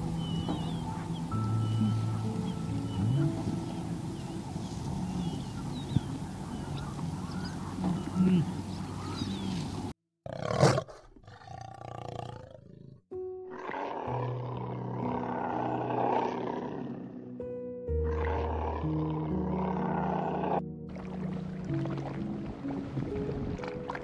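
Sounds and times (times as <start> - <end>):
calm background music: 0.0 - 9.7, 13.1 - 24.0
honking animal calls: 0.0 - 9.8
cougar snarling and growling: 10.2 - 17.3, 18.0 - 20.6.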